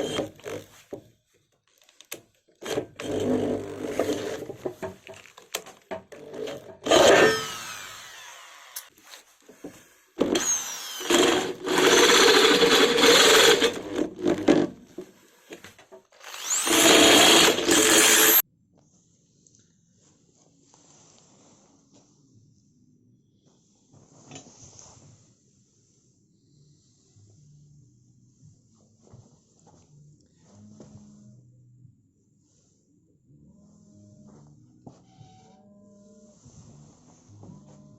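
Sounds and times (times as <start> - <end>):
power drill running: 6.4 - 8.9, 10.2 - 14.1, 16.1 - 18.4.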